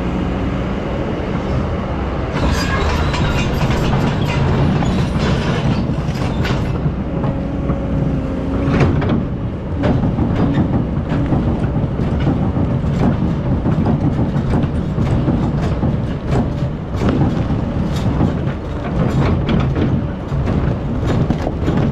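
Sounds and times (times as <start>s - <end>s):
excavator diesel engine droning: 0.0s - 21.9s
metallic clanks and knocks: 2.4s - 7.9s, 8.6s - 21.9s.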